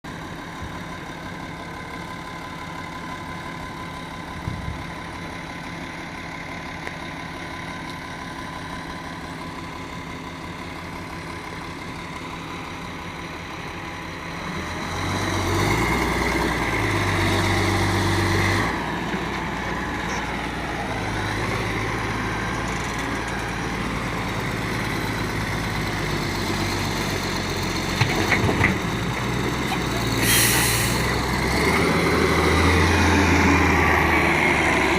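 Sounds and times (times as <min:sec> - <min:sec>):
excavator engine revving: 0:14.0 - 0:34.9.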